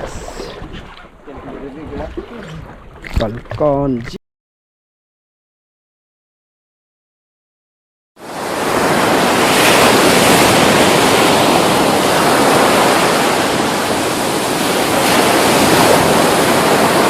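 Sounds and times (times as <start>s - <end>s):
sea waves: 0.0s - 4.2s, 8.2s - 17.0s.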